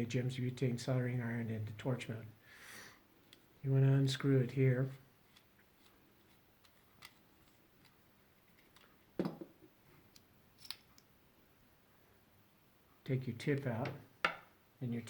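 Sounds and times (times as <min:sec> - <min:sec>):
knock: 0:09.2 - 0:09.5
metal tip unscrewing clicks and scrapes: 0:10.1 - 0:11.1.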